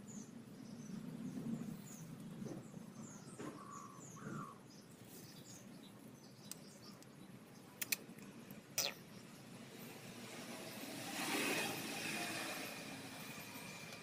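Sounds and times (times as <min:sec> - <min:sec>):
small bird chirping: 0:08.8 - 0:09.4.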